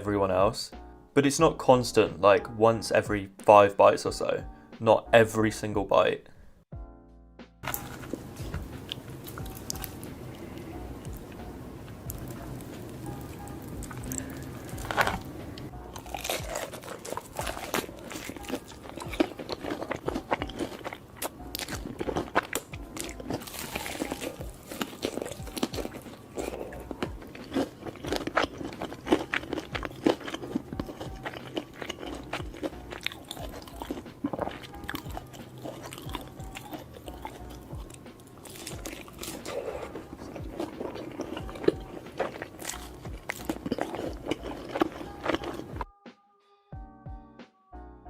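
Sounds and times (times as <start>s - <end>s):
chewing: 7.6s - 45.8s
crunchy bites into fried chicken: 16.0s - 37.4s.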